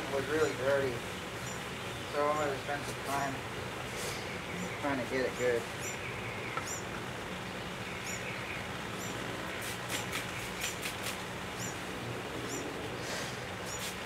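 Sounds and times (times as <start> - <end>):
small bird chirping: 0.3 - 3.2, 4.0 - 13.0, 13.6 - 14.0
spray bottle squirting: 9.6 - 11.2, 13.6 - 14.0.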